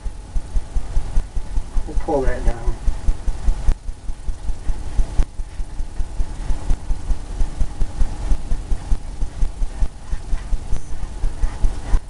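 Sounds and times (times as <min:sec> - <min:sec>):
paint brush scrubbing canvas: 0:08.7 - 0:12.0.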